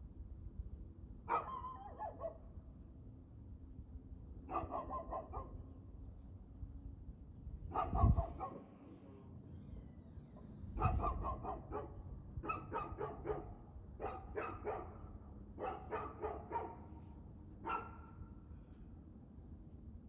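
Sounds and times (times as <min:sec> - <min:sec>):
dog barking: 0:01.3 - 0:02.4, 0:04.5 - 0:05.6, 0:07.7 - 0:08.6, 0:10.8 - 0:17.0, 0:17.6 - 0:18.2.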